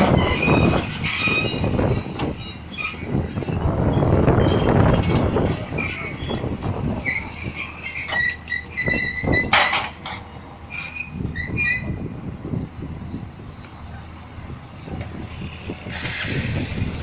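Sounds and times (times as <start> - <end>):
metallic squeals and creaks: 0.0 - 12.1
low engine rumble: 0.0 - 17.0.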